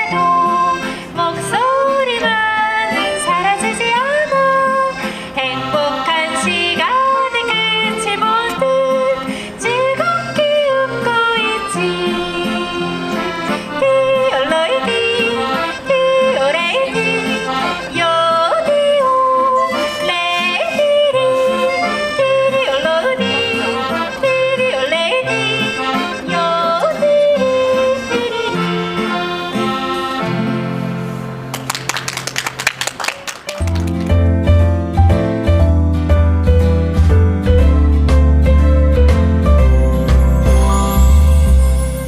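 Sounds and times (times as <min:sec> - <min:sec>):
women yodeling: 0:00.0 - 0:28.4
accordion: 0:00.0 - 0:31.8, 0:33.6 - 0:42.0.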